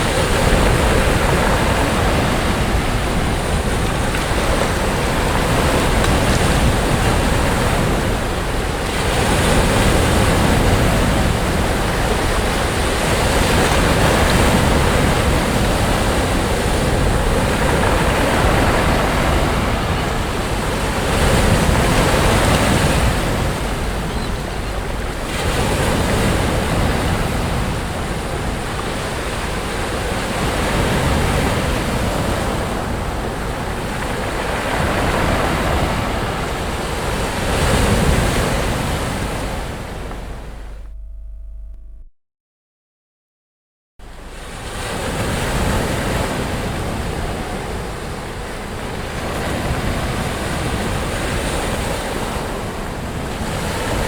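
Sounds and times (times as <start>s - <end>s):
sea waves breaking on beach: 0.0s - 40.8s, 44.0s - 54.0s
wind on microphone: 0.0s - 41.9s.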